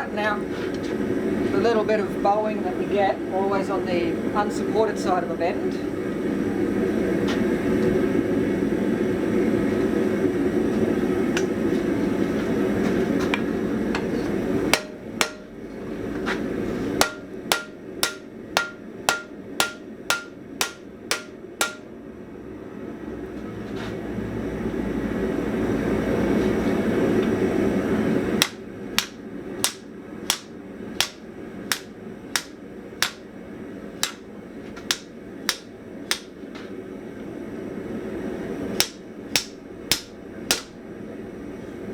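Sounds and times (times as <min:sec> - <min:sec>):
hammer striking steel on anvil: 0:14.7 - 0:15.6, 0:17.0 - 0:21.9, 0:28.4 - 0:33.3, 0:34.0 - 0:34.3, 0:34.9 - 0:36.4, 0:38.8 - 0:40.8.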